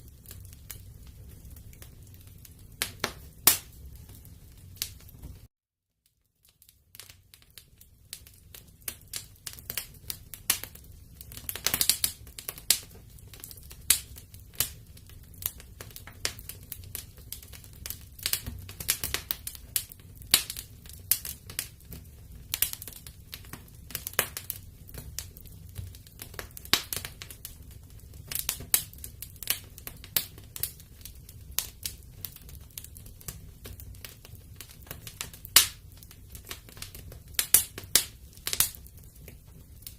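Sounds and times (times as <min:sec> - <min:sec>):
low rumble of flames: 0:00.0 - 0:05.5, 0:06.6 - 0:39.9
wood fire crackling: 0:00.0 - 0:05.5, 0:06.1 - 0:39.9.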